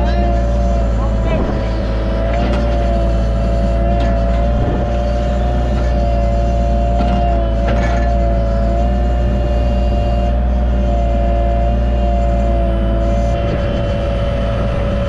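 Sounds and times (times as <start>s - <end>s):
diesel engine running: 0.0s - 15.0s
hydraulic whine: 0.0s - 15.0s
brief knocks: 4.4s - 5.3s.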